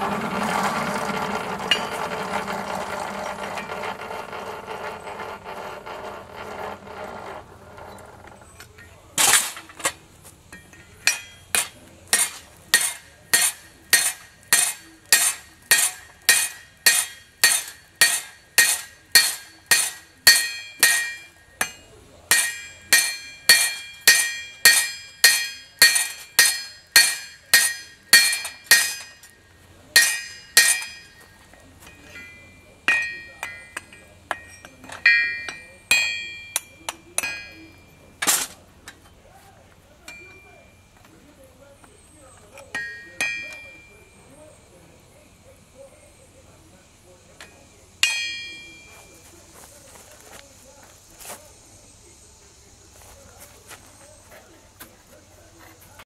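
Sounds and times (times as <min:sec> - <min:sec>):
machine running: 0:00.0 - 0:08.4
hammer striking steel on anvil: 0:10.5 - 0:38.5, 0:40.1 - 0:40.7, 0:42.6 - 0:44.2, 0:47.4 - 0:49.1.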